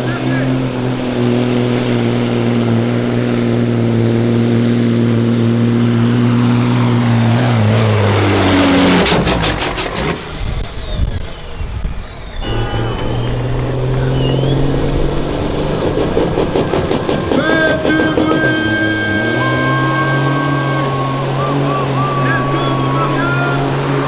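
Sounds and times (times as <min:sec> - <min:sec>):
truck diesel engine under load: 0:00.0 - 0:24.0
air rush with sharp pops: 0:05.0 - 0:13.1
turbo whistle: 0:05.7 - 0:24.0.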